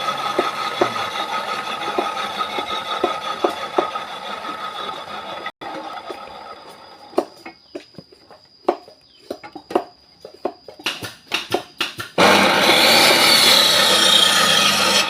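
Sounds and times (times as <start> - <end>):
power tool on wood: 0.0 - 7.2, 12.2 - 15.0.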